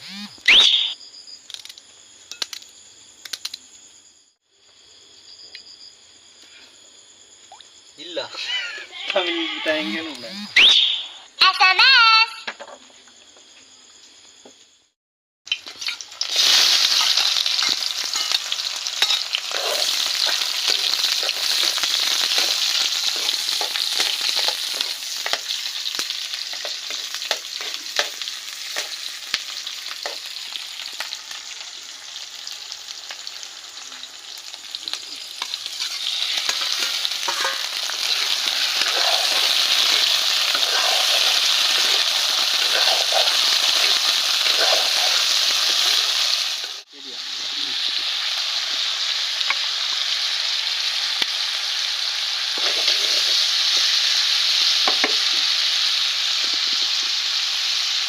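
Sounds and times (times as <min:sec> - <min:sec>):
fish frying in hot oil: 0:15.5 - 0:58.0.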